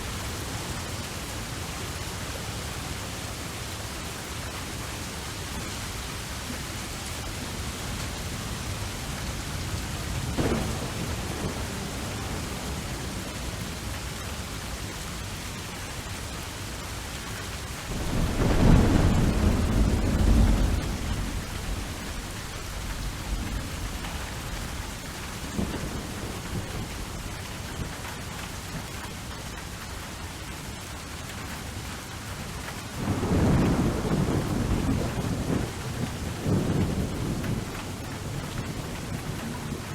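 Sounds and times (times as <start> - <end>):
steady rain falling: 0.0 - 39.9
rolling thunder: 7.5 - 15.2, 17.8 - 28.1, 33.0 - 39.9.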